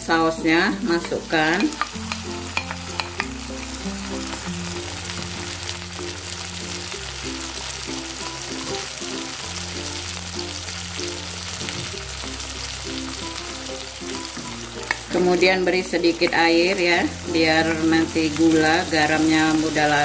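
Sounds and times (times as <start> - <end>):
background music with bass line: 0.0 - 20.0
sauce sizzling in a wok: 0.0 - 20.0
spatula stirring: 0.7 - 6.7.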